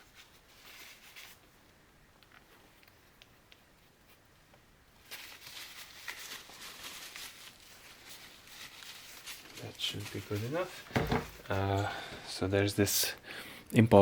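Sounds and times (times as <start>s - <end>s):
paper towel rustling and crumpling: 0.0s - 1.6s, 5.0s - 11.6s.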